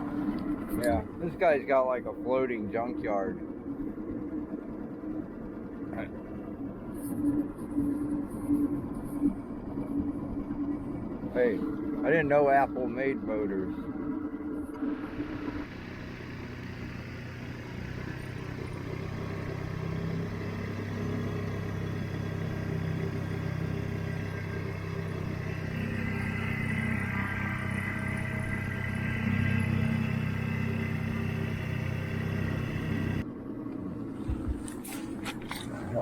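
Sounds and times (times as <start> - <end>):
outboard motor running: 5.7 - 33.2.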